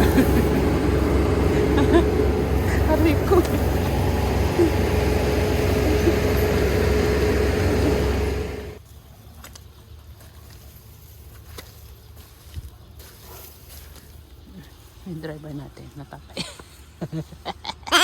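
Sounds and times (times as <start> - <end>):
diesel engine running: 0.0 - 8.8.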